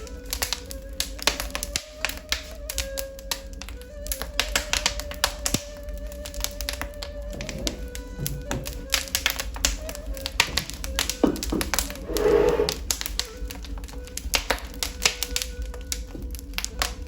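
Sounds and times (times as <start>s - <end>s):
fire popping and snapping: 0.0s - 17.0s
wood fire crackling: 0.0s - 17.0s
fire hissing: 7.2s - 16.8s.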